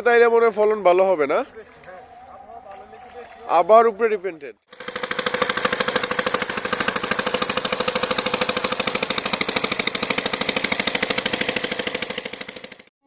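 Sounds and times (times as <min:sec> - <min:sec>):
small engine puttering: 0:04.7 - 0:12.9.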